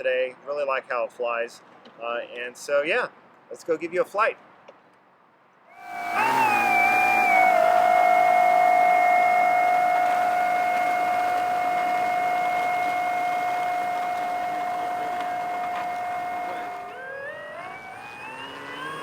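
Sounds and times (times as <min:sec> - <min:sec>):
electric motor and propeller whine: 0:05.8 - 0:19.0.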